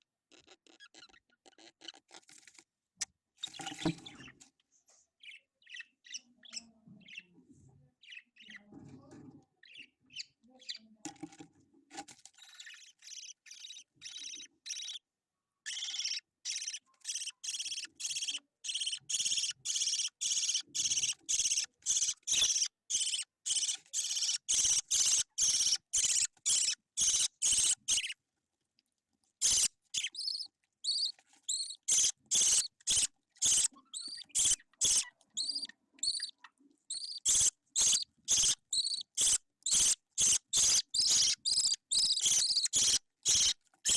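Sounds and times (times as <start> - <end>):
budgie chick begging chirps: 12.6 - 15.0, 15.7 - 28.2, 29.4 - 43.9.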